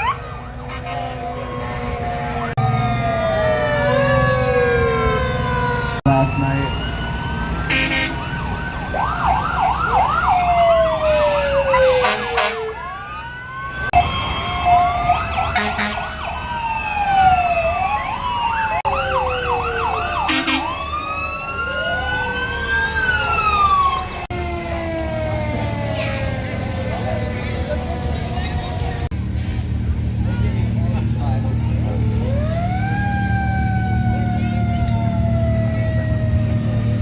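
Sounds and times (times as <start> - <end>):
emergency vehicle sirens wailing: 0.0 - 37.0
short horn blasts: 7.7 - 8.2, 12.0 - 12.7, 15.6 - 16.1, 20.3 - 20.7.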